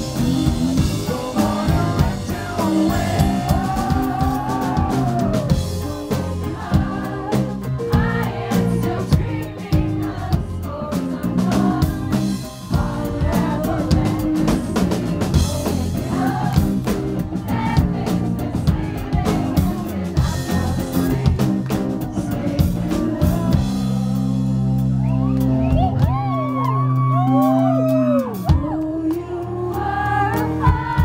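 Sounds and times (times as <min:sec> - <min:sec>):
person singing: 0:00.0 - 0:09.6, 0:18.7 - 0:24.6, 0:26.8 - 0:31.0
drum kit beat: 0:00.0 - 0:31.0
guitar: 0:00.0 - 0:31.0.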